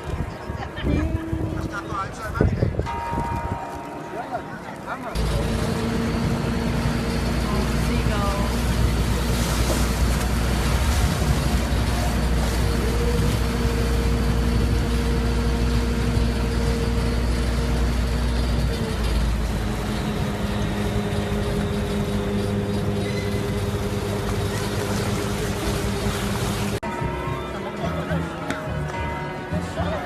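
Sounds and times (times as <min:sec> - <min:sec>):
engine hum with low rumble: 0:05.2 - 0:28.9.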